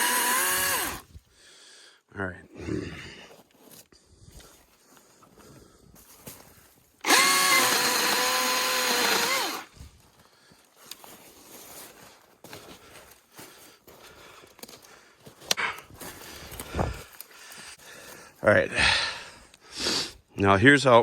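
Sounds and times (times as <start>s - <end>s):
electric chainsaw running: 0.0s - 1.0s, 7.0s - 9.7s.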